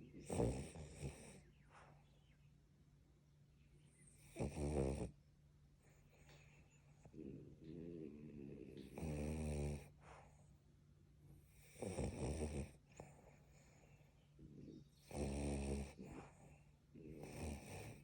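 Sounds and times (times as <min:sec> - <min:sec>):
dogs snoring: 0:00.0 - 0:02.1, 0:03.9 - 0:05.2, 0:05.8 - 0:10.5, 0:11.4 - 0:18.0
dogs breathing: 0:05.8 - 0:10.6, 0:11.5 - 0:18.0.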